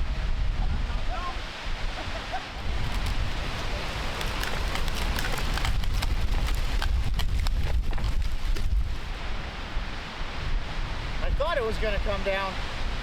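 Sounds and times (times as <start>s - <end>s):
gusting wind buffeting microphone: 0.0s - 13.0s
sharp crackling ticks: 2.8s - 7.8s.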